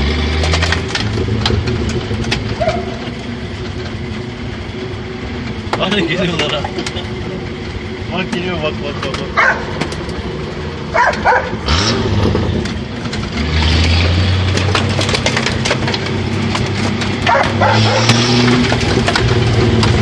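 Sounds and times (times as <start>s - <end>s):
engine pulling hard off-road: 0.0s - 20.0s
dogs barking: 2.5s - 3.2s, 9.3s - 9.8s, 10.9s - 11.8s, 17.2s - 18.3s
stones and mud knocking: 12.5s - 20.0s.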